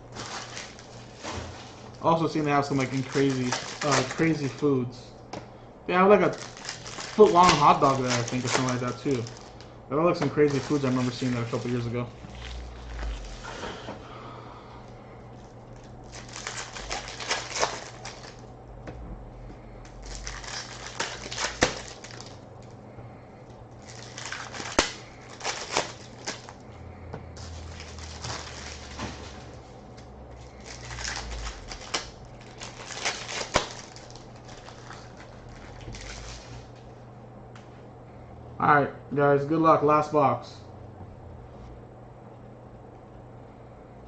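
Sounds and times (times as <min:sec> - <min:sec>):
card wrappers rustling and tearing: 0:00.0 - 0:04.9, 0:06.1 - 0:13.8, 0:14.8 - 0:18.5, 0:19.8 - 0:22.7, 0:23.7 - 0:26.6, 0:27.4 - 0:36.8.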